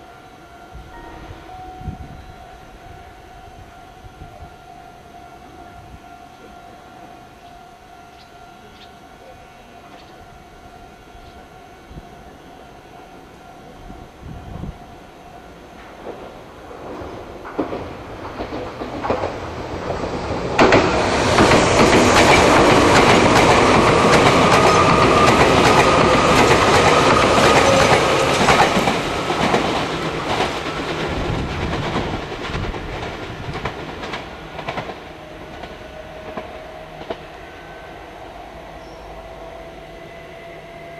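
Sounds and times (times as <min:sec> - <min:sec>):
electric train passing: 0:00.0 - 0:40.9
wheels clattering over rail joints: 0:15.8 - 0:35.7.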